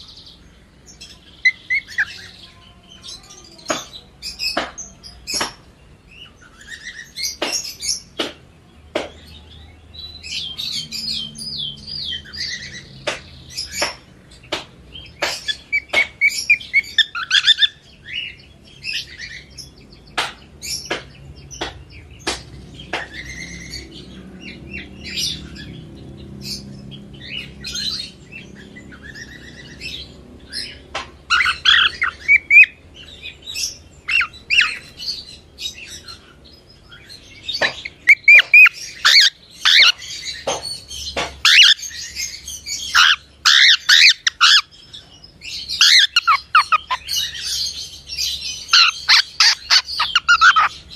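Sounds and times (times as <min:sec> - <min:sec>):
cockatiel chirping and squawking: 0:01.0 - 0:02.4, 0:15.3 - 0:17.8, 0:31.3 - 0:32.8, 0:37.6 - 0:40.5, 0:41.4 - 0:44.7, 0:45.8 - 0:47.8, 0:48.6 - 0:50.8.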